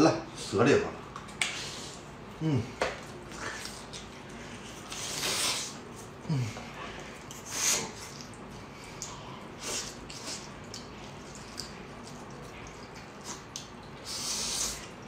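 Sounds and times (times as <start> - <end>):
wet chewing and lip-smacking: 6.9 - 15.0.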